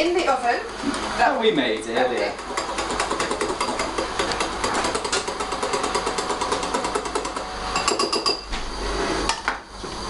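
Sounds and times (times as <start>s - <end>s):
whisk beating batter in bowl: 2.0s - 8.2s.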